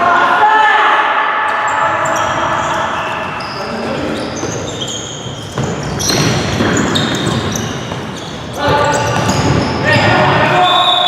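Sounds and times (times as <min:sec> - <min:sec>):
shoes squeaking on court floor: 0:01.5 - 0:11.0
ball bouncing: 0:05.4 - 0:10.3.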